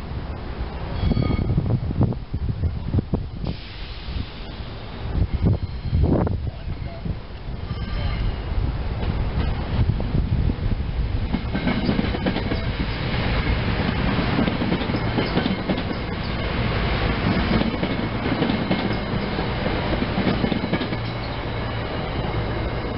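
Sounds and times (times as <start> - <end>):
commuter train passing: 0.0 - 22.9
wheels clicking over rail joints: 11.3 - 21.6.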